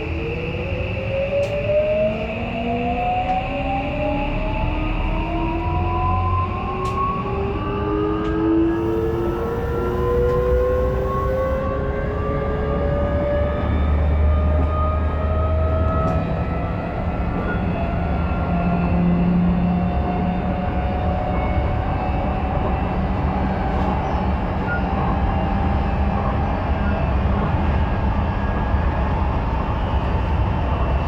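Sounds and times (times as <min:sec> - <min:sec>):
train traction motor whine: 0:00.0 - 0:16.3
wheels rumbling on rails: 0:00.0 - 0:31.0.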